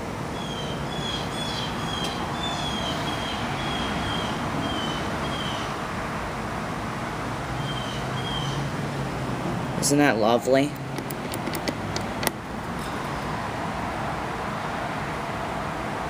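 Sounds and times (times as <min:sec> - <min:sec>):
distant traffic noise: 0:00.0 - 0:16.0
bird chirping: 0:00.4 - 0:05.7, 0:07.6 - 0:08.7.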